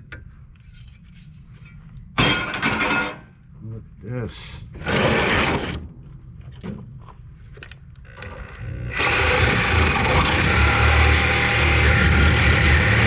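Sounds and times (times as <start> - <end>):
loud mechanical rattle: 4.8 - 5.8, 8.2 - 13.0.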